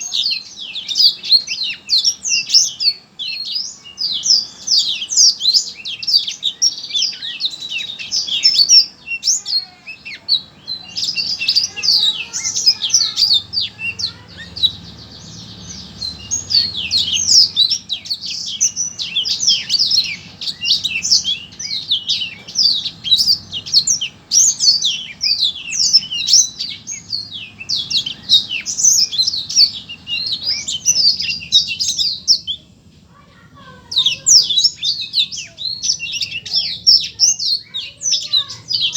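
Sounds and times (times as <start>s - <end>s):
songbird chirps and trills: 0.0s - 38.9s.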